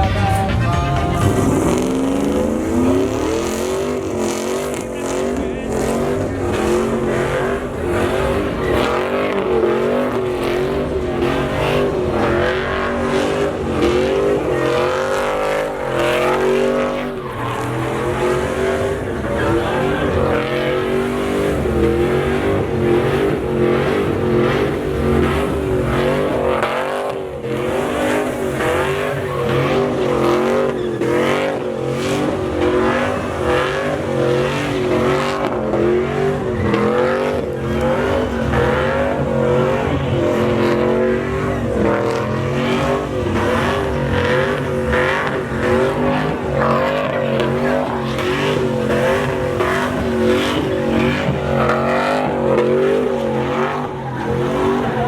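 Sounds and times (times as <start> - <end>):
truck engine at high revs: 0.0 - 55.0
spinning tyres hissing: 1.0 - 55.0.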